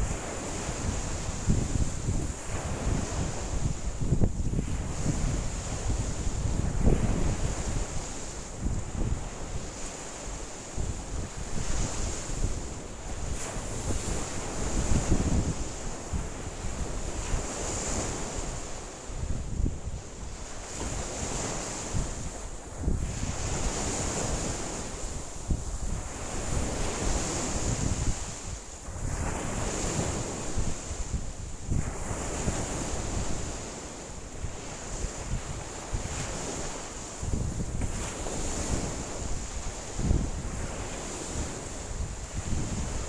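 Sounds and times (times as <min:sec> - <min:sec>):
wind buffeting microphone: 0:00.0 - 0:10.0, 0:10.6 - 0:43.0
lake waves washing in: 0:00.0 - 0:43.0.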